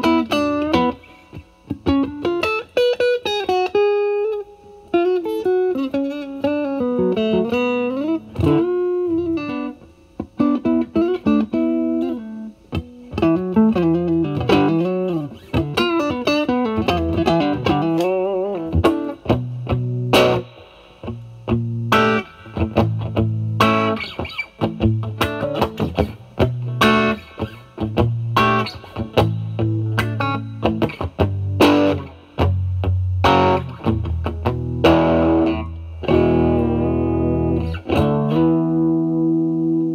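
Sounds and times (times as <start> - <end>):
overdriven electric guitar: 0.0 - 39.9.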